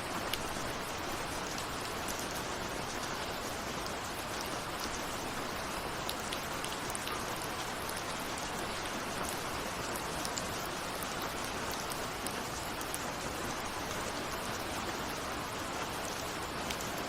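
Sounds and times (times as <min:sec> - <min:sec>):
rain ticking on a window: 0:00.0 - 0:17.0.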